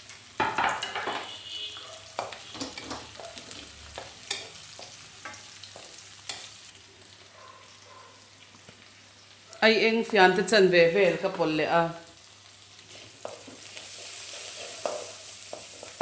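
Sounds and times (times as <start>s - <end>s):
onions sizzling in hot oil: 0.0s - 16.0s
spatula scraping and knocking pan: 0.4s - 6.5s, 12.9s - 16.0s.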